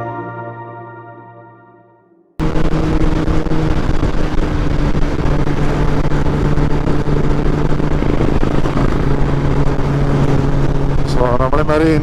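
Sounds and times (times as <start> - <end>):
motorcycle engine cruising: 2.4 - 12.0
wind noise: 2.4 - 12.0.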